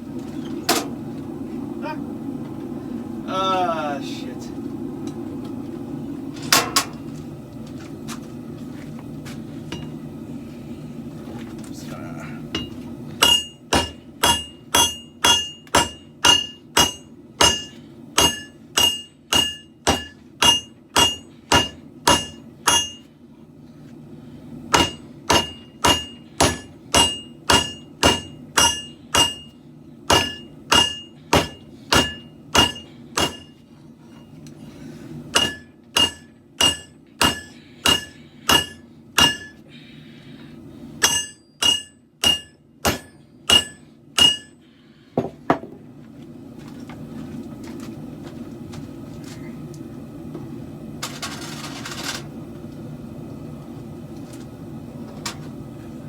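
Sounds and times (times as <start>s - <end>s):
steady low hum: 0.0s - 56.0s
hammer striking steel blade on anvil: 12.5s - 23.1s, 24.7s - 33.6s, 35.3s - 39.6s, 41.0s - 44.6s.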